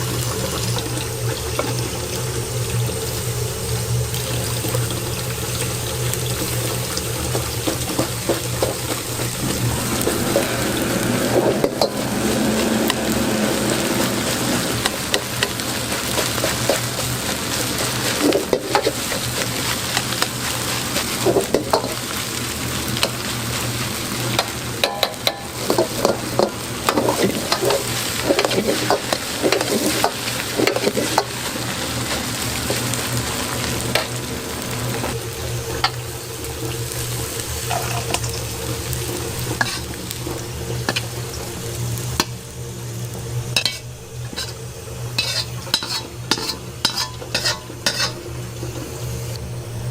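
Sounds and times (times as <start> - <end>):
rice sizzling in a pan: 0.0 - 49.9
metal spatula scraping pan: 39.6 - 39.9, 43.6 - 44.6, 45.2 - 48.2.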